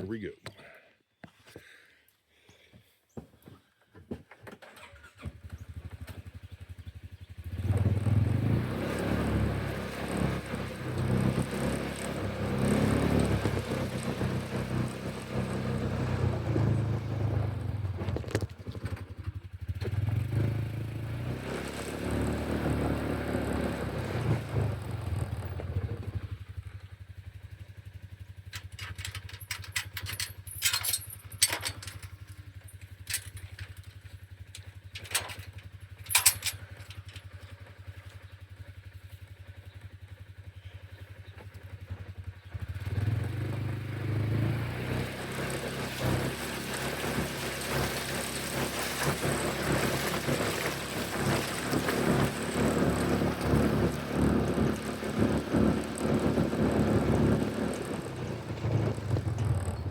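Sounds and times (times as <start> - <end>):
vehicle engine running: 4.8 - 59.9
sharp clicks and metallic clatters: 28.4 - 38.2.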